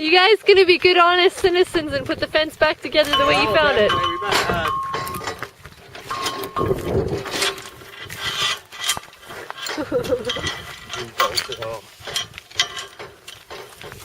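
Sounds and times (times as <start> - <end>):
metallic clicking and rattling: 3.0 - 14.0.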